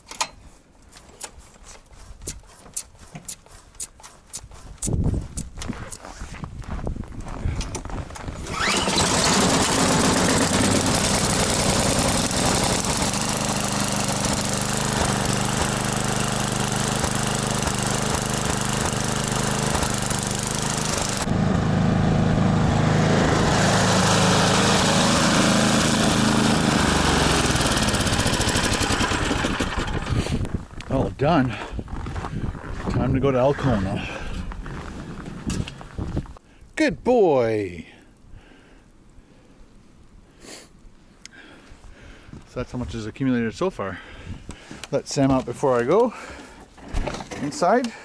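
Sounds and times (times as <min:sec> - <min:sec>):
snow clearing rushing hiss: 0:08.4 - 0:30.5
snowblower engine running: 0:08.4 - 0:30.5.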